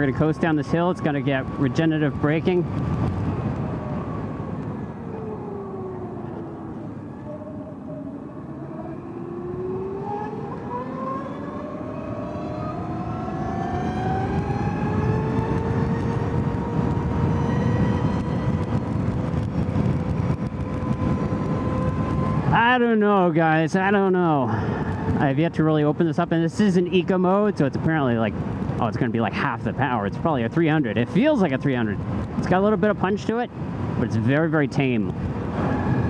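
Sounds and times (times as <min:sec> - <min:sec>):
electric motorcycle motor whine: 0:00.0 - 0:22.5
wind and road noise: 0:00.0 - 0:36.0.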